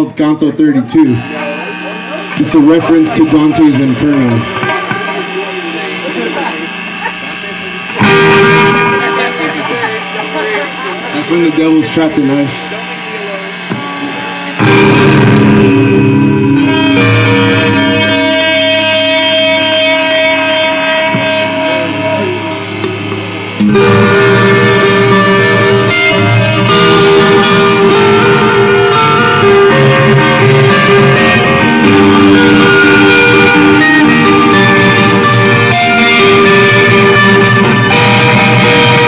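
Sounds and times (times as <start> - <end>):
electric guitar notes ringing: 0.0 - 39.0
live band playing: 0.9 - 39.0.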